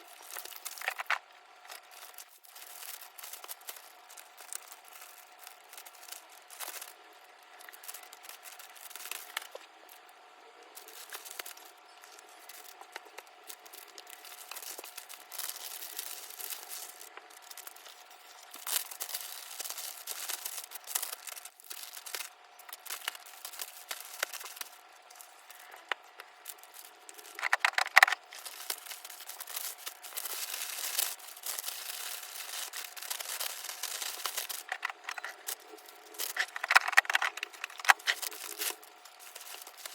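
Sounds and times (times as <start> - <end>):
plastic packaging crinkling: 0.0 - 39.9
packaging tearing: 0.1 - 9.6, 10.8 - 39.9.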